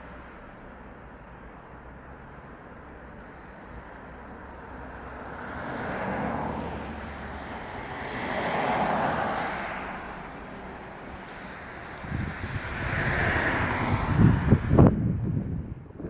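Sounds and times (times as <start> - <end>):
blizzard wind gusting: 7.5 - 16.0.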